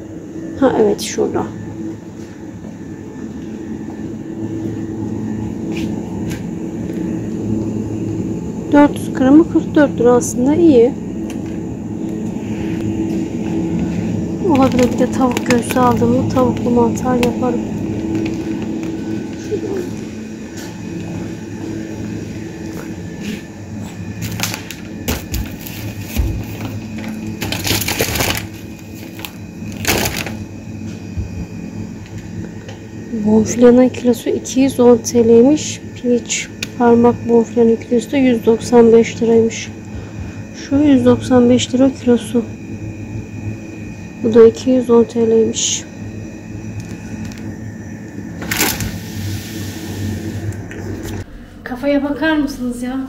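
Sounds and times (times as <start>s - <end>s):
supermarket humming background: 0.0s - 53.0s
plastic packaging crinkling: 14.5s - 19.6s, 24.2s - 30.4s, 48.4s - 49.0s.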